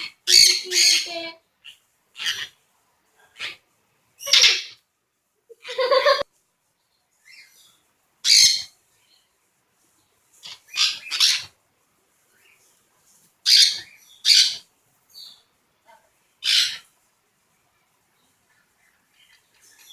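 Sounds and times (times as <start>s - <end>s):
parrot squawking: 0.0s - 2.6s, 3.3s - 3.6s, 4.2s - 4.8s, 8.2s - 8.7s, 10.4s - 11.6s, 13.4s - 14.6s, 16.4s - 16.9s.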